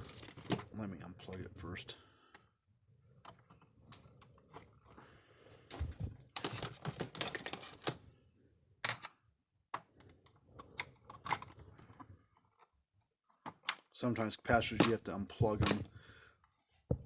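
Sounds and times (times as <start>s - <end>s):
clicks and rattling of wiring: 0.0s - 1.5s, 5.7s - 8.0s, 8.8s - 9.2s, 13.3s - 15.9s.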